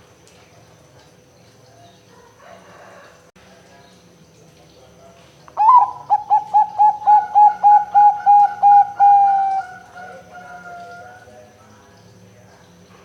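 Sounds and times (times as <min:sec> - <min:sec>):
dove cooing: 0:05.6 - 0:11.3.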